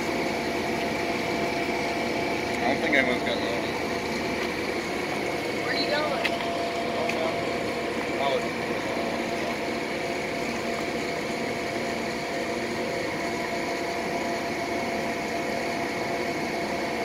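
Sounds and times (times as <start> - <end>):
train humming steadily: 0.0 - 17.0.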